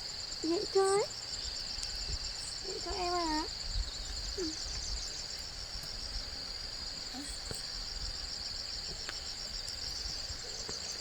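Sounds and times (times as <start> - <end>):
high-pitched insect chorus: 0.0 - 11.0
faint ticks: 8.8 - 11.0.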